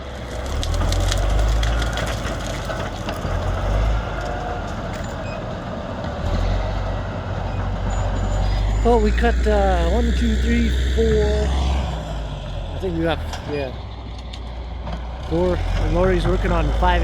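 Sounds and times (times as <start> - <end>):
wood cracking and snapping: 0.0 - 6.7, 13.2 - 17.0
bulldozer diesel engine rumbling: 0.0 - 17.0.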